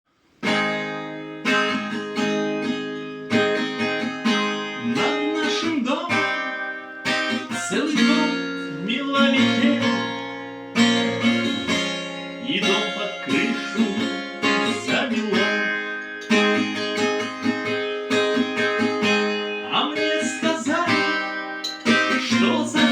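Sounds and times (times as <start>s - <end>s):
acoustic guitar strumming chords: 0.3s - 22.9s
wavering melody line: 6.2s - 17.0s.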